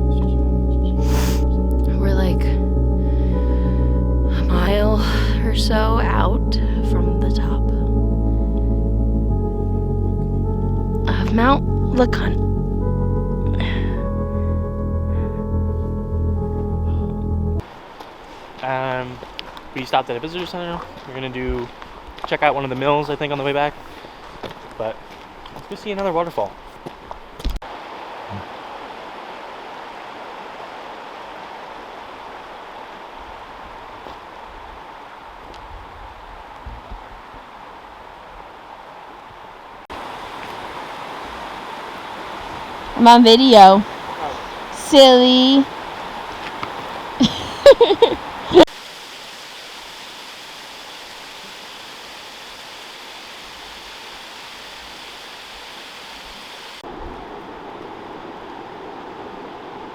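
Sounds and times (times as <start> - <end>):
creek water rushing: 17.6 - 59.9
waterfall rushing: 39.9 - 59.9.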